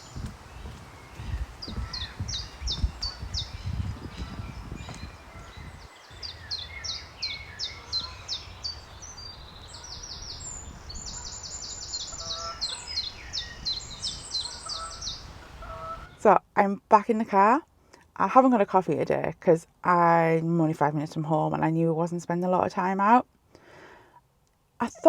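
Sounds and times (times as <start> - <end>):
low rumble on microphone: 0.0 - 16.1
small songbirds singing: 0.0 - 16.2.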